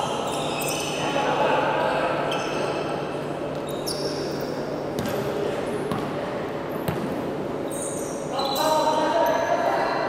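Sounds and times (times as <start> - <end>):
basketball bouncing on gym floor: 5.0 - 6.2, 6.8 - 7.3.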